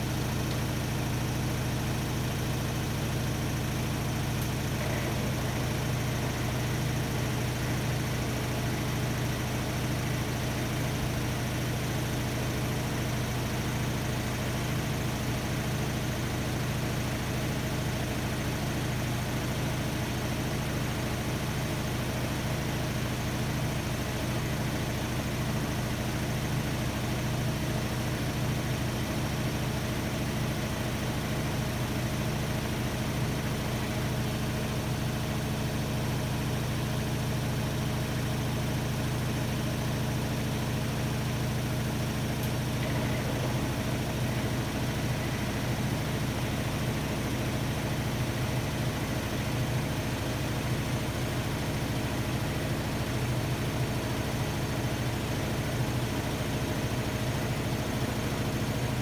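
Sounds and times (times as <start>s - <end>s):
washer-dryer humming: 4.4s - 6.6s, 41.9s - 47.8s.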